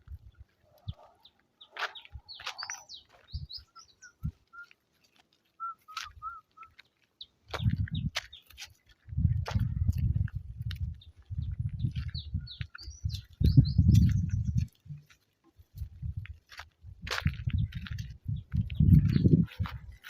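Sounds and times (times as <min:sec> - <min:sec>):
birds chirping: 0:00.2 - 0:04.8, 0:05.5 - 0:09.0, 0:10.9 - 0:15.2, 0:17.4 - 0:20.0.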